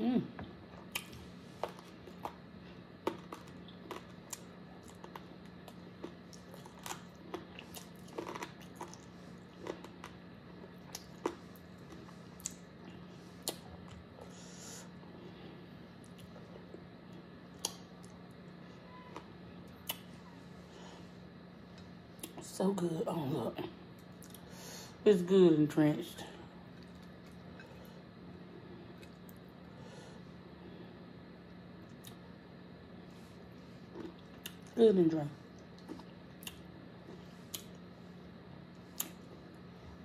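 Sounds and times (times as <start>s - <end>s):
faint steady hum: 0.0s - 40.0s
person chewing crunchy food: 0.6s - 15.2s, 26.6s - 28.0s, 33.2s - 34.8s, 35.5s - 39.6s.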